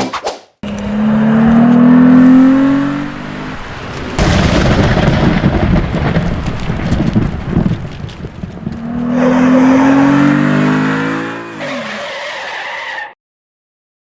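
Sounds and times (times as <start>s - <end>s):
car engine revving: 0.6s - 4.4s, 8.7s - 12.1s.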